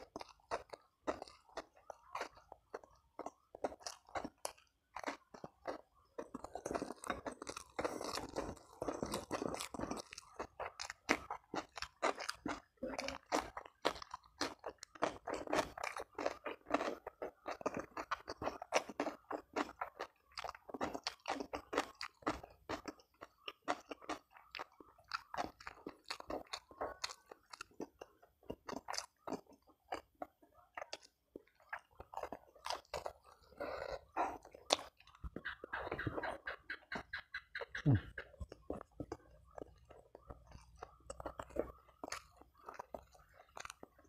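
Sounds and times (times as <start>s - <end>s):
person chewing crunchy food: 0.0s - 44.0s.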